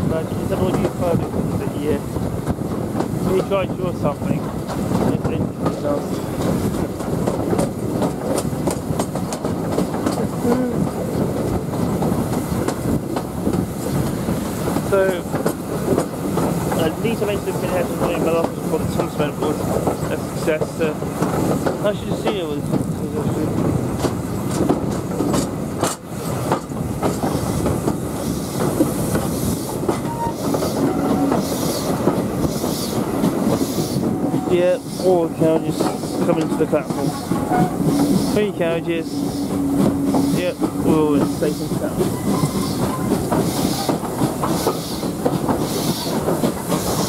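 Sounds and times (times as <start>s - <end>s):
train rumbling: 0.0s - 47.0s
wheels clicking over rail joints: 0.2s - 47.0s
brief squeak: 42.2s - 43.1s.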